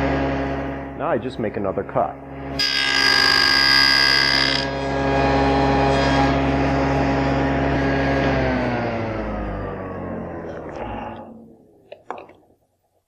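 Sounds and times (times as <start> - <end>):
table saw humming: 1.8 - 11.5
table saw cutting board: 2.2 - 11.2
saw blade winding down: 2.5 - 11.3.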